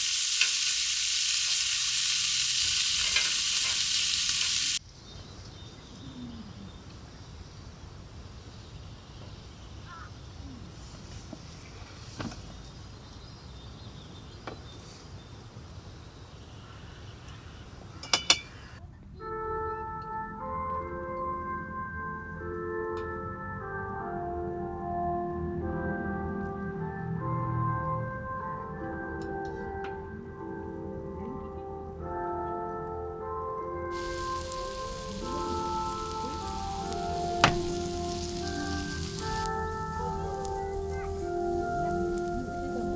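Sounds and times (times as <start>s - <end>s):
soft bell-like music: 19.2s - 33.9s
low background noise: 33.9s - 42.9s
steady rain falling: 33.9s - 42.9s.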